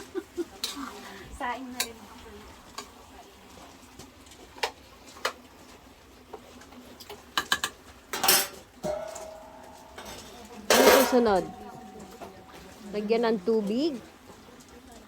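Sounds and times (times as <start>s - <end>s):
clattering dishes: 7.4s - 13.2s
dishes and utensils clinking: 7.4s - 13.9s.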